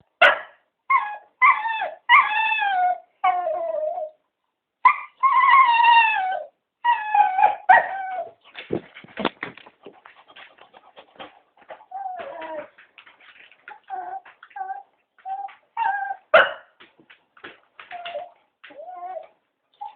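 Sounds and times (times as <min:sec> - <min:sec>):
dogs whining and howling: 0:00.9 - 0:04.2, 0:04.8 - 0:08.4, 0:11.7 - 0:12.9, 0:13.7 - 0:16.4, 0:17.8 - 0:19.9.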